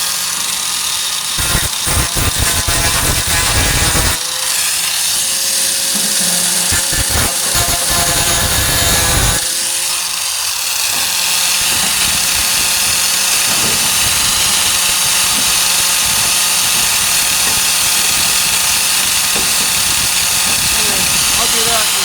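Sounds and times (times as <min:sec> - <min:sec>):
angle grinder on sheet steel: 0:00.0 - 0:22.0.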